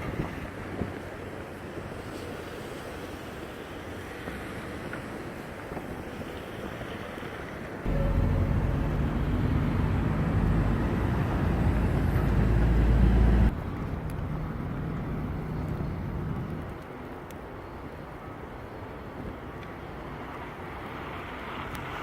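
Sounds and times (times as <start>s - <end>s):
traffic rumble on city street: 0.0s - 22.0s
engine hum: 7.8s - 16.8s.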